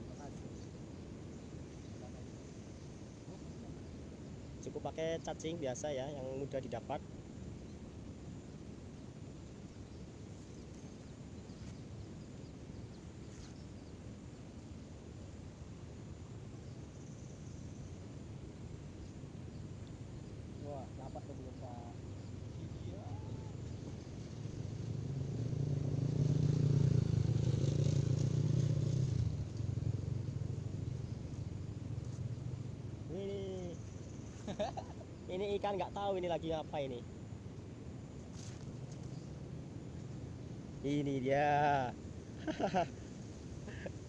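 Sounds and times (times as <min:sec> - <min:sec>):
steady low rumble: 0:00.0 - 0:44.0
motor vehicle passing by: 0:22.5 - 0:33.9.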